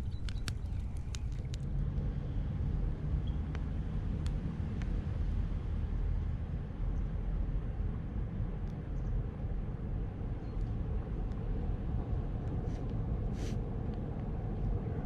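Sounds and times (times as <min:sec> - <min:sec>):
faint clicks: 0:00.0 - 0:01.7
steady low rumble: 0:00.0 - 0:15.0.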